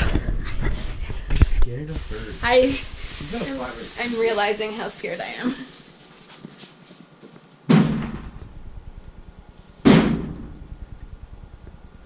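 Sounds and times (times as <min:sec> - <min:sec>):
heavy bangs on a clothes dryer: 0:07.7 - 0:08.4, 0:09.8 - 0:10.4.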